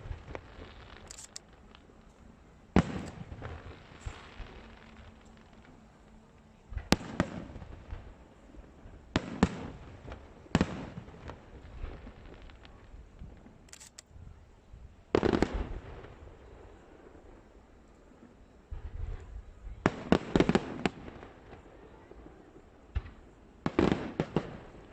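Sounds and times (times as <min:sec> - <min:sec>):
rapid firework pops: 0:00.0 - 0:02.1, 0:02.8 - 0:05.8, 0:09.2 - 0:13.5
fireworks bangs with echo: 0:02.7 - 0:05.8, 0:06.7 - 0:08.2, 0:09.1 - 0:13.5, 0:15.1 - 0:16.3, 0:22.9 - 0:24.9.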